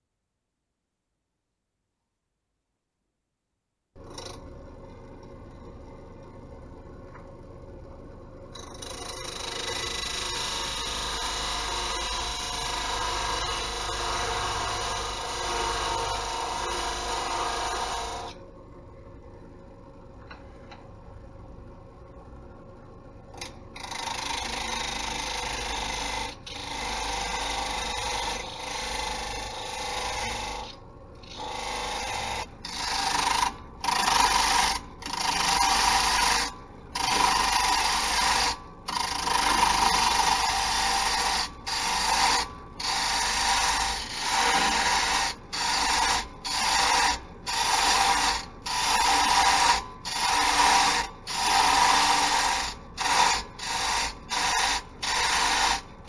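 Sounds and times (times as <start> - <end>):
wood lathe tool cutting wood: 9.3 - 18.3, 23.8 - 55.9.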